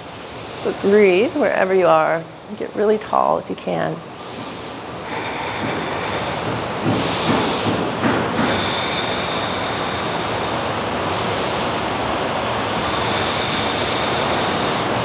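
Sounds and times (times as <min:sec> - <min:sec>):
hiss of washing water: 0:00.0 - 0:02.4, 0:04.0 - 0:15.0
ocean surf rushing: 0:04.0 - 0:15.0.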